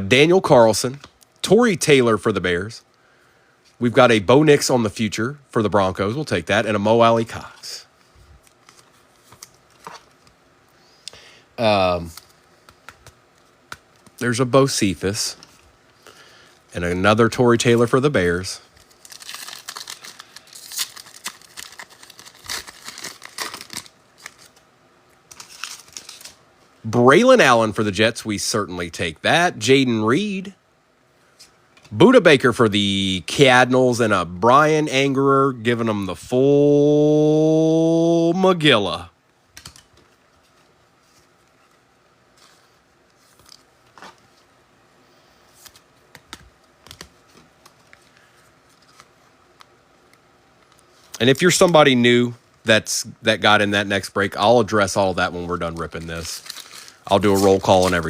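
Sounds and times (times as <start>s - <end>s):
trading cards clicking and rustling: 12.0s - 14.2s, 18.7s - 24.6s, 25.2s - 26.4s, 39.5s - 41.3s, 45.6s - 49.7s, 55.6s - 58.0s
foil card pack opened: 18.8s - 24.6s, 25.3s - 26.4s, 55.6s - 58.0s.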